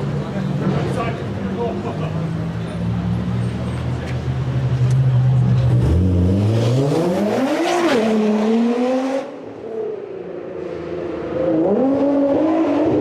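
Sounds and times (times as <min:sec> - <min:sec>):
sports car engine accelerating: 0:03.2 - 0:09.8.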